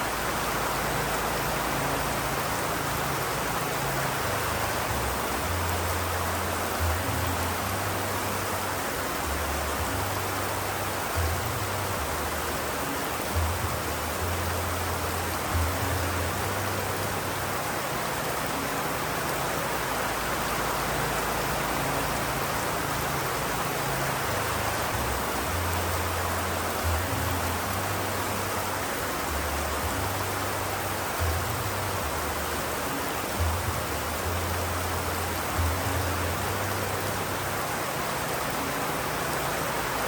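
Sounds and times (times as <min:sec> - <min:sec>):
steady rain: 0:00.0 - 0:40.0.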